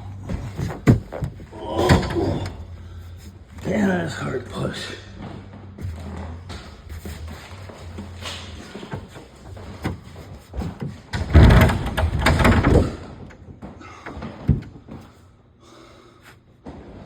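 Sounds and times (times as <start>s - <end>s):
knocks and thuds: 0.0s - 3.7s, 5.2s - 15.0s
refrigerator scraping across floor: 0.0s - 13.0s.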